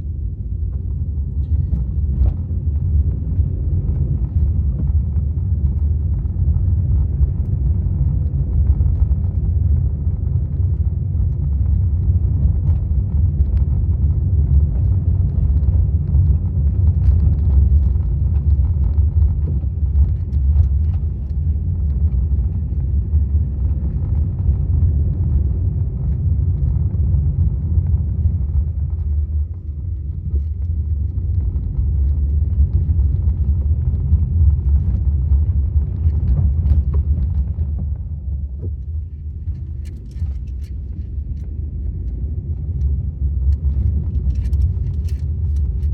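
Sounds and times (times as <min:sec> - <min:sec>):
car engine and road noise: 0:00.0 - 0:45.9.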